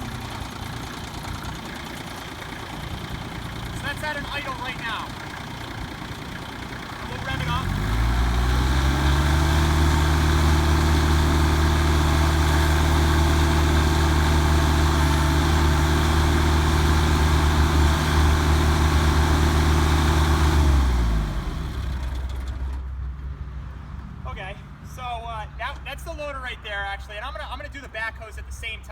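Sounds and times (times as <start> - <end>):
tractor diesel engine revving: 0.0 - 23.0.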